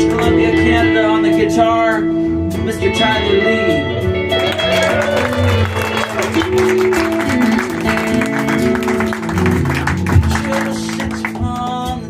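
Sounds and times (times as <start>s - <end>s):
bending lead guitar line: 0.0s - 12.0s
live band instrumental music: 0.0s - 12.0s.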